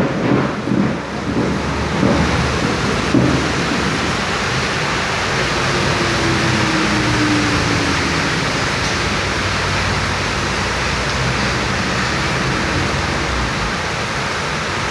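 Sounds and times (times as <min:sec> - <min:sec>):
heavy rain pouring: 0:00.0 - 0:14.9.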